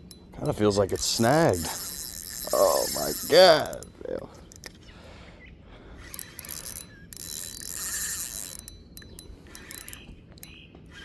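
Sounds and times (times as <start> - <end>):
fishing reel ratcheting: 0.1 - 3.9, 4.5 - 4.7, 6.1 - 10.0.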